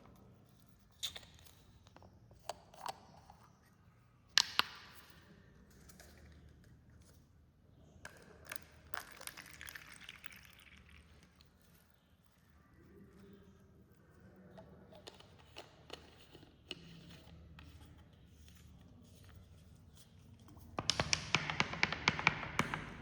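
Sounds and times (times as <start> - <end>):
cola fizzing: 8.4 - 11.5
handling clicks and knocks: 20.6 - 23.0.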